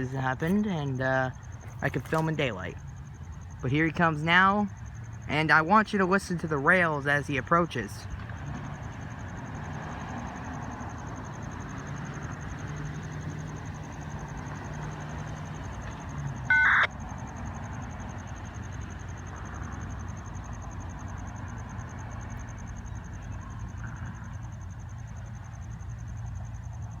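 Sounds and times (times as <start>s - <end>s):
loud high-pitched tone: 16.5s - 16.9s.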